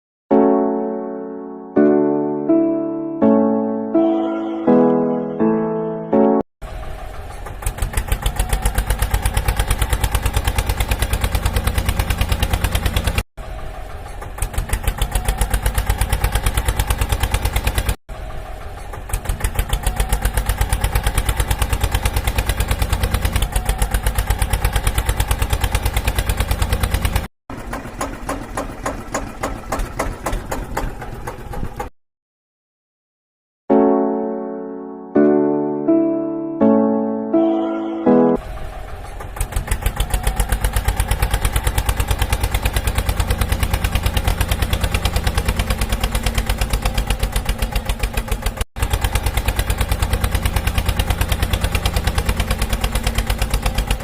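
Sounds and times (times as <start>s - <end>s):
tractor engine chugging: 6.6s - 31.9s, 38.4s - 54.0s.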